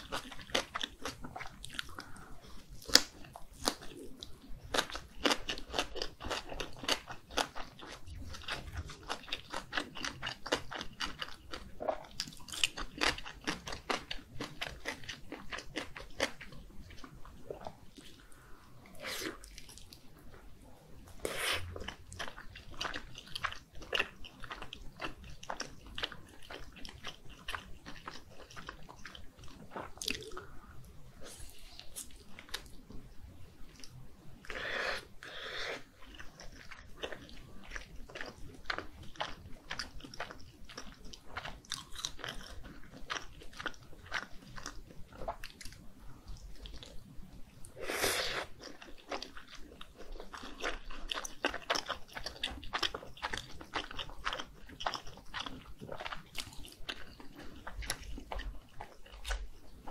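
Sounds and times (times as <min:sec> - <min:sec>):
wet sticky chewing: 0:21.2 - 0:30.6, 0:33.7 - 0:47.0, 0:48.0 - 0:59.9.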